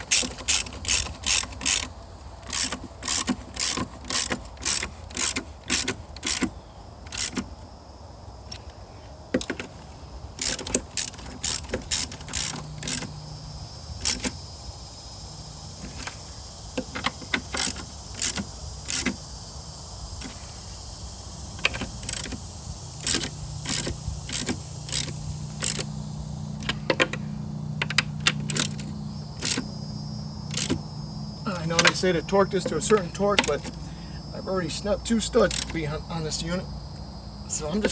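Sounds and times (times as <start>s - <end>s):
socket ratchet clicking: 0.0s - 7.5s, 10.4s - 13.2s, 14.0s - 14.4s, 16.8s - 19.2s, 21.5s - 22.4s, 23.0s - 27.2s, 27.8s - 29.8s, 30.4s - 30.9s, 31.5s - 33.9s, 35.3s - 35.9s.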